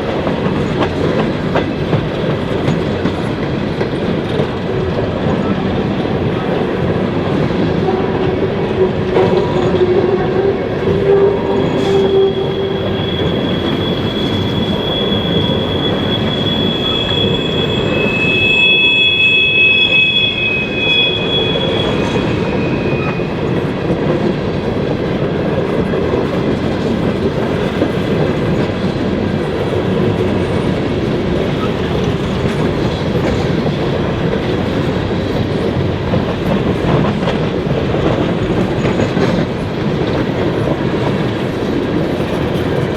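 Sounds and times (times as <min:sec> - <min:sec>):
train rumbling and clattering: 0:00.0 - 0:42.9
high-pitched wheel squeal: 0:10.8 - 0:23.6.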